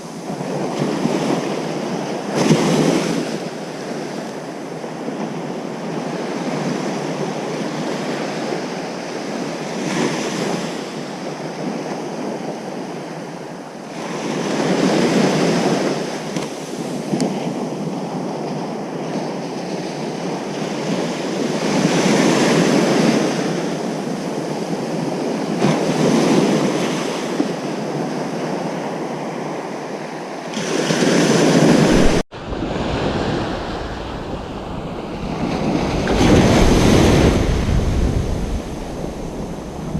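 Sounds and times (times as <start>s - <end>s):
wind rumble on microphone: 0.0s - 39.9s
ocean surf breaking: 20.0s - 39.9s.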